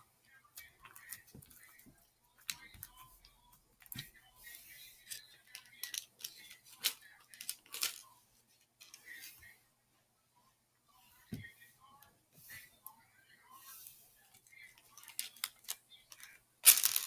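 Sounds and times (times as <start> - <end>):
plastic beads and slime clicking: 5.6 - 8.0, 15.0 - 17.0.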